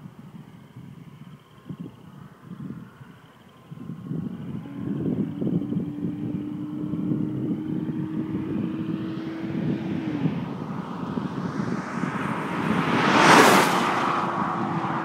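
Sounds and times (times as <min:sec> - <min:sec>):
wind buffeting microphone: 0:00.0 - 0:15.0
car engine approaching at speed: 0:03.5 - 0:15.0.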